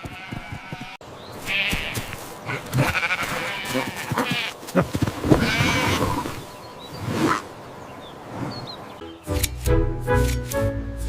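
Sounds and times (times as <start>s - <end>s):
sheep bleating: 0.0s - 4.8s, 5.4s - 6.0s.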